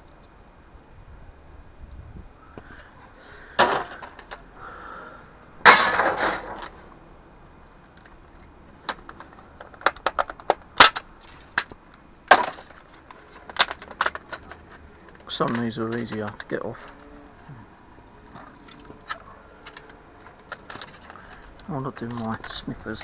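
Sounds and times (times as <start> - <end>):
small parts scraping and rattling: 2.6 - 23.0.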